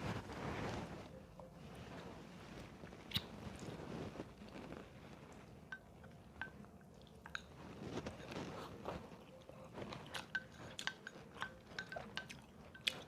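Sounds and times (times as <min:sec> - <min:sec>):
person chewing food: 0:06.0 - 0:13.0.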